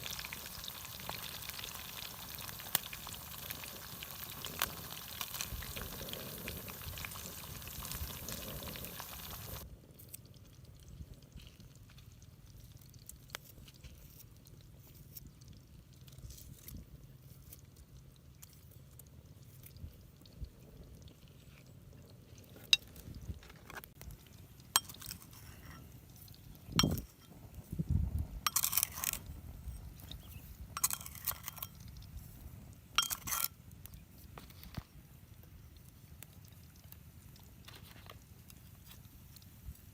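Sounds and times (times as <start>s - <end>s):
fish sizzling in frying: 0.0s - 14.4s, 22.5s - 39.9s.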